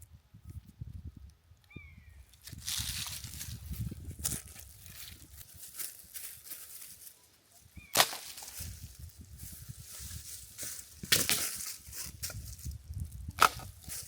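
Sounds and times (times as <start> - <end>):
sharp cracks or knocks: 7.9 - 8.6, 11.0 - 11.7.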